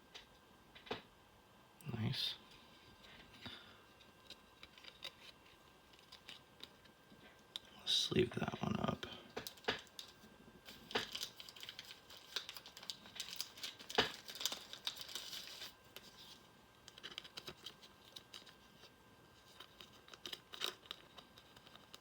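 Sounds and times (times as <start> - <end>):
trading cards rustling: 3.0 - 7.6, 9.3 - 22.0.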